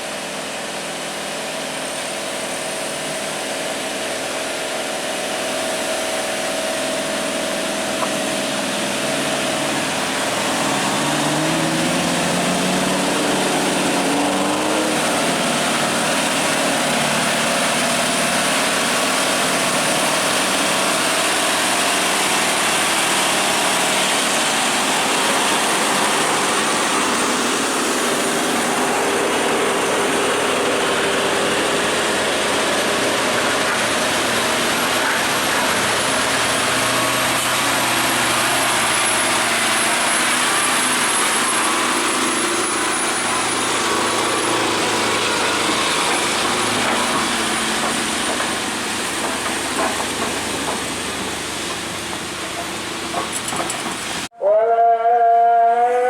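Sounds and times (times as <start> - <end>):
road noise: 0.0 - 56.0
truck engines: 0.0 - 56.0.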